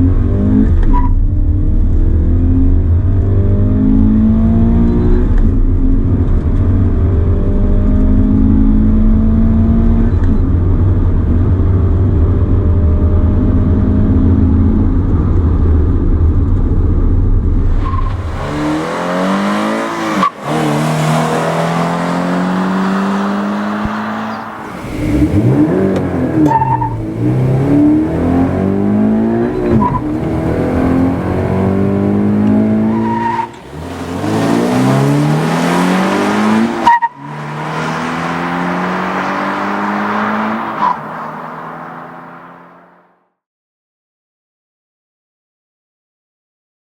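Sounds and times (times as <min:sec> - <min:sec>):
car engine revving hard: 0:17.8 - 0:43.1.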